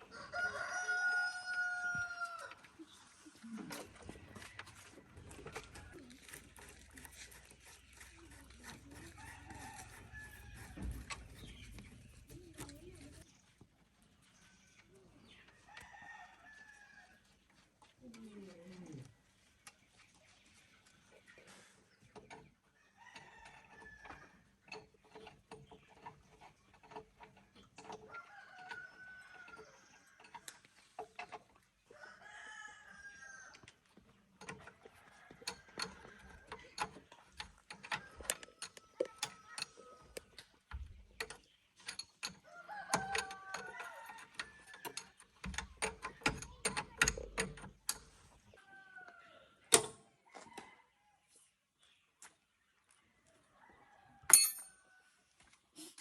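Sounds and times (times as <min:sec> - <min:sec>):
chickens clucking: 0:00.0 - 0:13.4
rooster crowing: 0:00.1 - 0:02.6, 0:32.0 - 0:33.6, 0:42.5 - 0:44.8
sharp clicks and knocks: 0:04.5 - 0:13.3, 0:34.4 - 0:48.2, 0:49.7 - 0:50.0.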